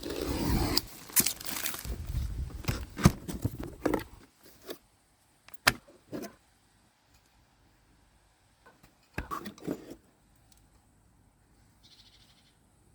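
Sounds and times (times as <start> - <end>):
packaging rustling: 0.8 - 3.8.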